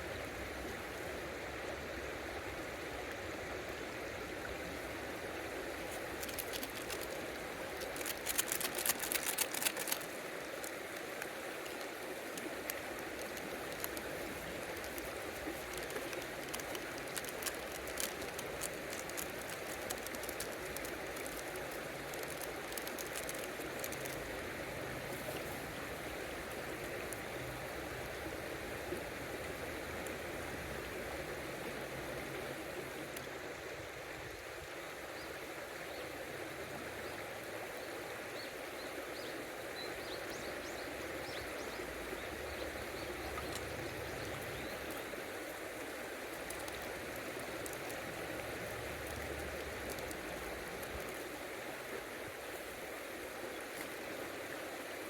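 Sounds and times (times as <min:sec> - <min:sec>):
river water running: 0:00.0 - 0:55.0
sharp clicks and crackles: 0:05.9 - 0:24.4, 0:46.3 - 0:51.2.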